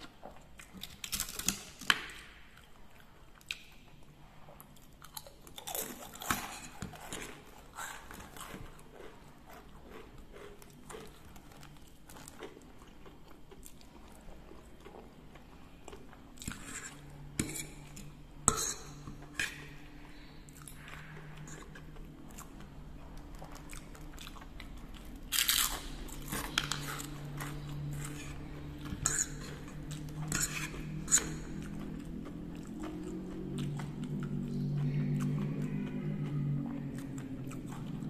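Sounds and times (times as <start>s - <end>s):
person chewing: 0.0s - 38.0s
crackers crunching: 0.6s - 2.1s, 20.6s - 38.0s.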